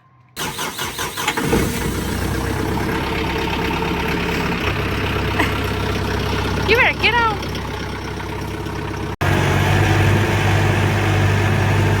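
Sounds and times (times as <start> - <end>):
starter cranking: 0.4 - 9.2
engine idling: 0.4 - 12.0.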